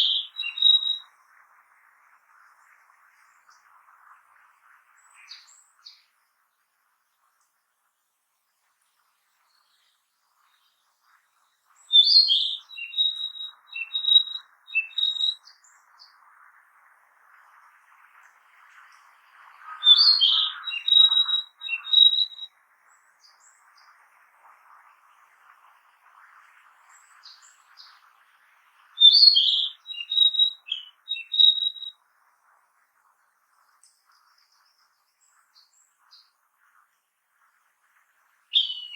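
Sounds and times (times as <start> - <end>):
bird singing whistled notes: 0.0 - 1.1, 11.8 - 16.1, 19.8 - 23.6, 29.0 - 32.0, 38.5 - 38.9
faint steady hiss: 0.0 - 38.9.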